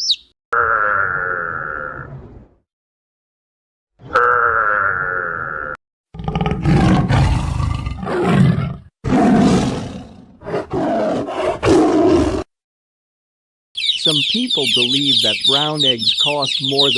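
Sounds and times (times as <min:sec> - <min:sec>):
large animal roaring: 0:06.1 - 0:12.5.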